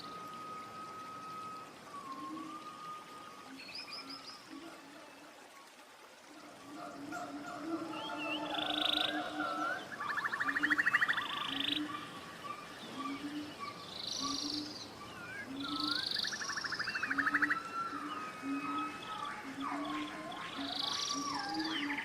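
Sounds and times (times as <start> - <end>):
birds buzzy trills and chirps: 0.0 - 22.0.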